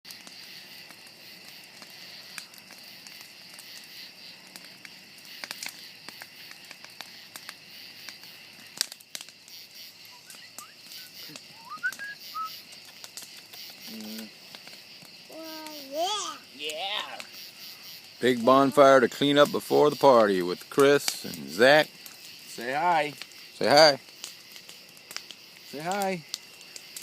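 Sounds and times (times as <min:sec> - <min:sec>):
bonfire crackling and popping: 0:00.0 - 0:27.0
insect chirring: 0:00.1 - 0:27.0
short rising whistles: 0:10.1 - 0:12.6.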